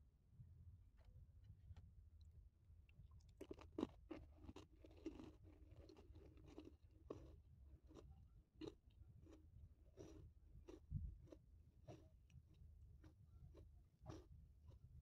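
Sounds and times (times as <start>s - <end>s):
person chewing crunchy snack: 3.2s - 14.9s.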